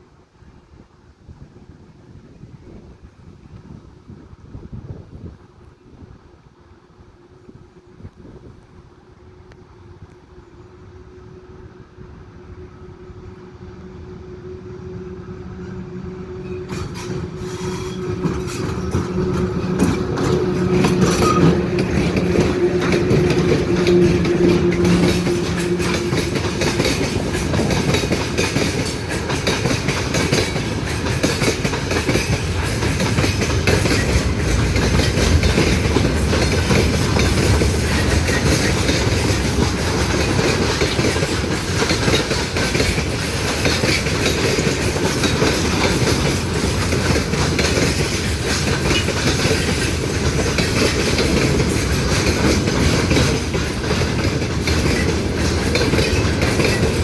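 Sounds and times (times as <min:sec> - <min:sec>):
train wheels clattering: 0:16.3 - 0:57.0.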